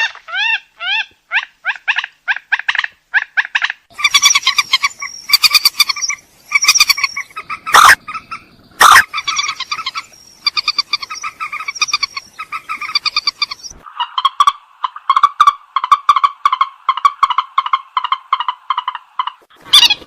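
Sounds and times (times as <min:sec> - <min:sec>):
bird nasal clucking: 0:01.7 - 0:20.0
bird harsh screeches: 0:04.0 - 0:08.0, 0:08.8 - 0:11.1.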